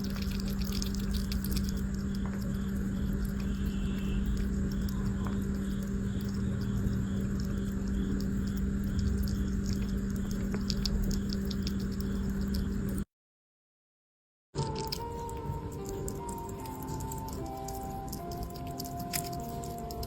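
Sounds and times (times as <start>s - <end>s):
small rodent scratching and clicking: 0.0s - 13.0s, 14.6s - 20.0s
steady low hum: 0.0s - 13.0s.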